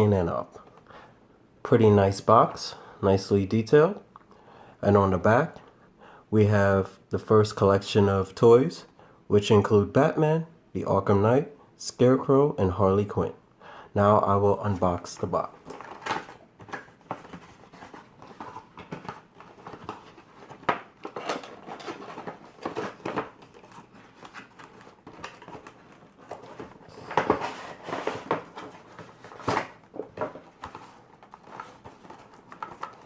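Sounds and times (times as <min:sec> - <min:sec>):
packaging crinkling and rustling: 0:15.1 - 0:33.0.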